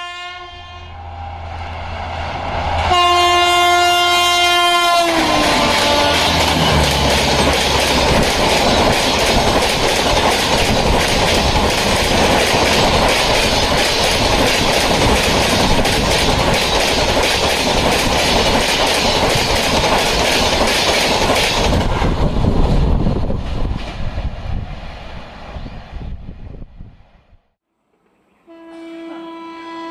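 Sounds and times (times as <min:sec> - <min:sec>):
train rumbling past: 0:00.0 - 0:27.3
wheel clatter over rail joints: 0:05.1 - 0:22.2.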